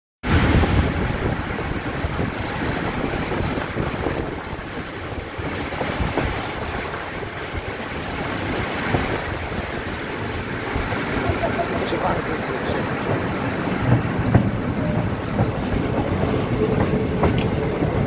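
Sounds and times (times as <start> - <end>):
train coach rolling over rails: 0.3 - 18.0
high-pitched wheel squeal: 1.0 - 7.8.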